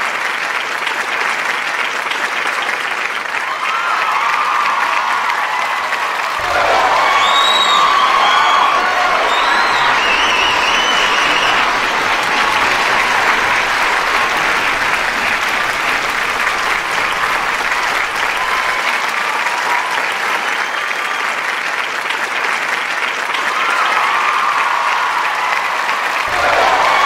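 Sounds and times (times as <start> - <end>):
audience applauding: 0.0 - 27.0
people shouting and whooping: 3.5 - 20.0, 23.4 - 27.0.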